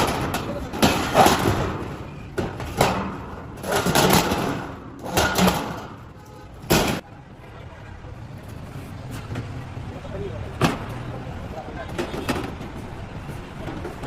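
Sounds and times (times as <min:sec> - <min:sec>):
knocks and clattering handling: 0:00.0 - 0:07.0, 0:11.9 - 0:14.0.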